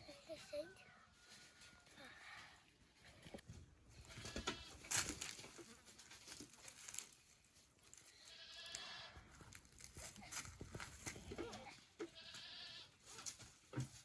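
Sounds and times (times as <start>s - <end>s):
rustles and knocks: 3.3s - 7.2s, 13.1s - 14.0s
goat bleating: 8.3s - 9.2s, 11.4s - 12.9s.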